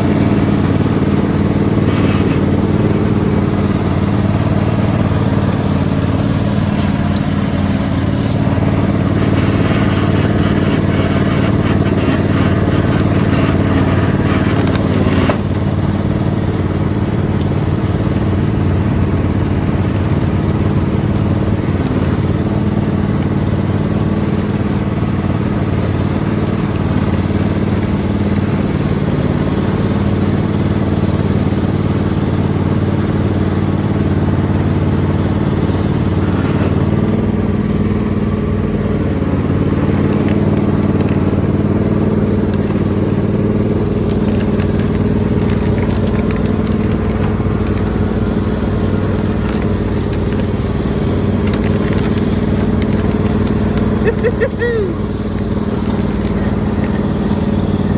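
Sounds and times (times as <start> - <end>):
riding lawn mower engine running: 0.0 - 57.9.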